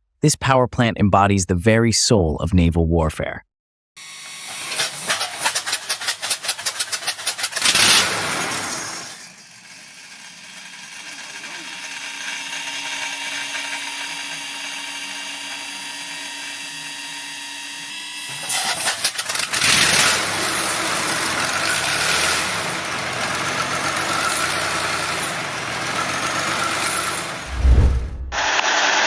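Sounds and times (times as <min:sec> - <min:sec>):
diesel engine starting and running: 0:04.3 - 0:12.1, 0:18.4 - 0:28.6.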